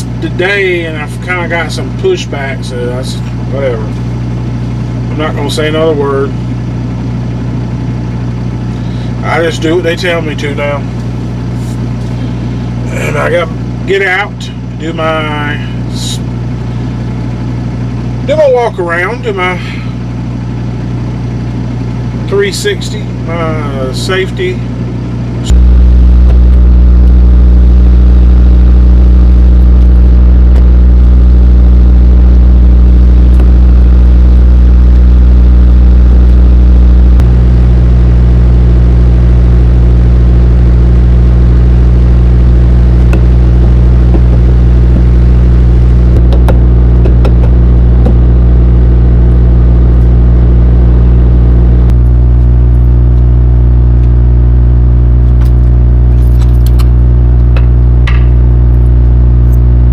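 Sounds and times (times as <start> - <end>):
truck diesel engine idling: 0.0 - 27.0, 34.8 - 53.1.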